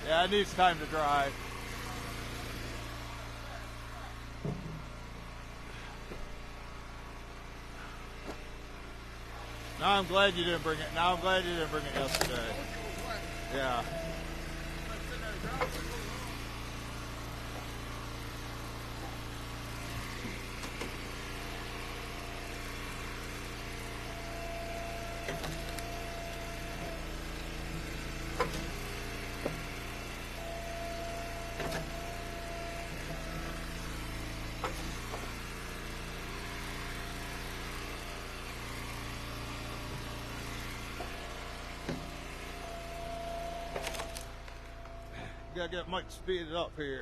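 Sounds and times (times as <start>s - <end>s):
log splitter engine running: 0.0s - 47.0s.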